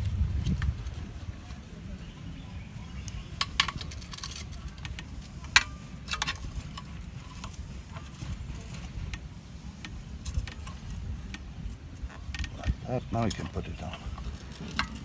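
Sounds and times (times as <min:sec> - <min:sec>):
steady low rumble: 0:00.0 - 0:02.8
metal parts clinking: 0:03.4 - 0:07.6, 0:12.4 - 0:15.0.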